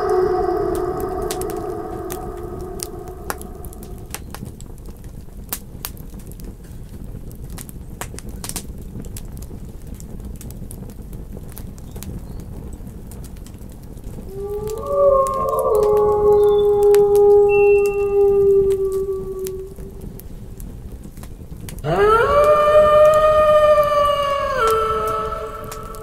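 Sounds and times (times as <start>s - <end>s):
wolf howl: 0.0s - 4.4s, 14.3s - 20.2s, 21.8s - 26.0s
campfire crackling and popping: 0.4s - 23.9s.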